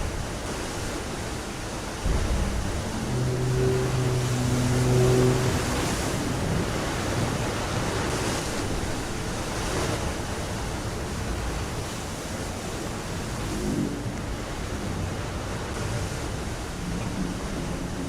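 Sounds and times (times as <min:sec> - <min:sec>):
rushing water: 0:00.0 - 0:18.0
low steady hum: 0:01.6 - 0:11.8.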